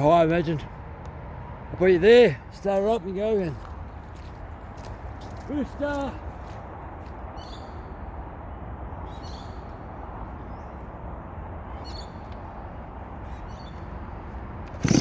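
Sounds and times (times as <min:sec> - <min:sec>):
high bird calls: 0:07.3 - 0:08.0, 0:09.0 - 0:10.8, 0:11.7 - 0:14.1.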